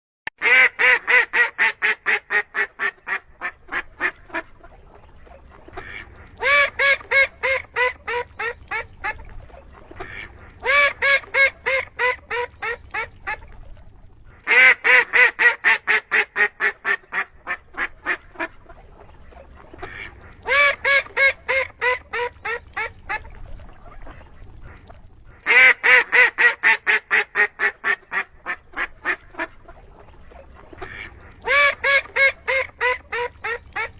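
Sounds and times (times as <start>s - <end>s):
duck quacking rapidly: 0.4s - 4.5s, 5.7s - 9.2s, 10.0s - 13.4s, 14.4s - 18.5s.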